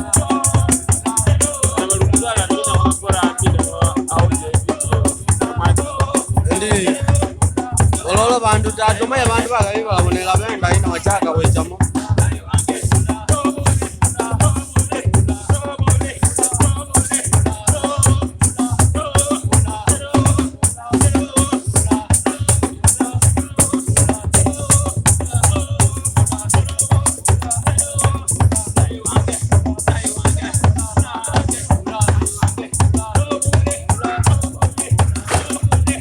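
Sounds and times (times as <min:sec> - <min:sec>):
gospel music with steady beat: 0:00.0 - 0:36.0
voices singing: 0:00.0 - 0:36.0
shakers rattling: 0:06.5 - 0:07.1, 0:34.8 - 0:36.0.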